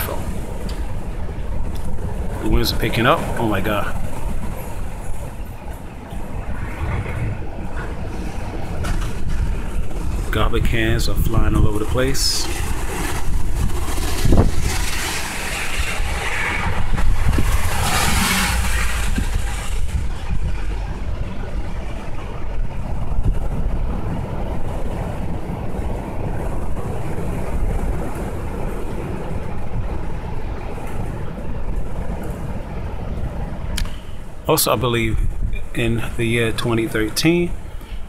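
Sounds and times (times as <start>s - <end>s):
gusty wind buffeting microphone: 0.0s - 38.0s.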